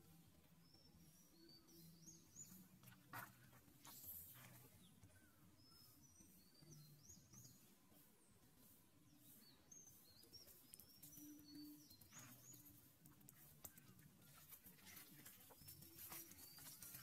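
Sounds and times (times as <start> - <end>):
faint birds chirping: 0.0 - 17.0
faint rustle: 2.3 - 5.4, 8.0 - 17.0.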